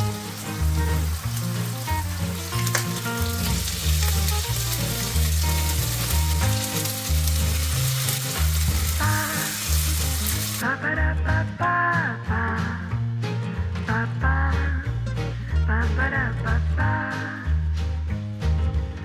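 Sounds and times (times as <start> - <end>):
fritters sizzling in hot oil: 0.0 - 10.6
background music with bass: 0.0 - 19.0.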